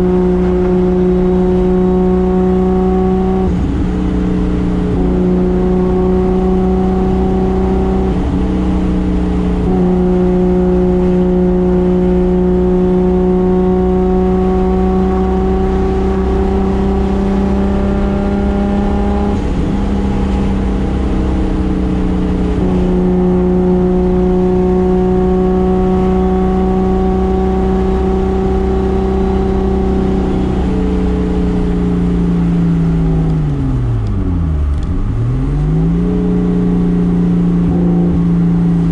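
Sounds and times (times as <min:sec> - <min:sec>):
engine running hard: 0:00.0 - 0:38.9.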